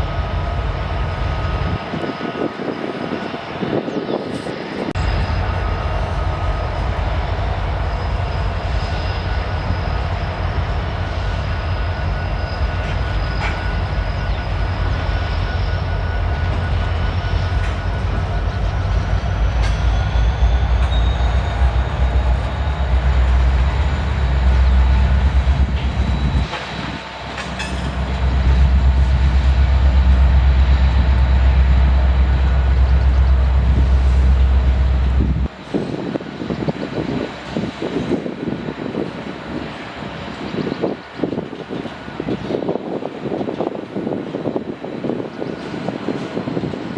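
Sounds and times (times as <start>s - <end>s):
train wheels rumbling on rails: 0.0s - 46.9s
faint high wheel squealing: 0.2s - 38.0s.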